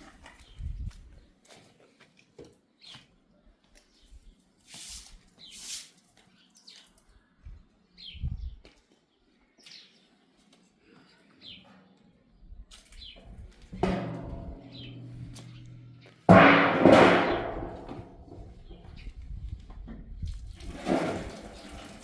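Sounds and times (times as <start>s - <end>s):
small birds chirping: 0.3s - 1.4s, 2.6s - 13.4s.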